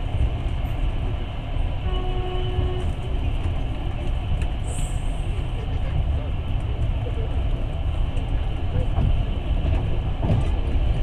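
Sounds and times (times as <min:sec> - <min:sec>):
train rumbling on rails: 0:00.0 - 0:11.0
faint train horn: 0:01.8 - 0:03.3.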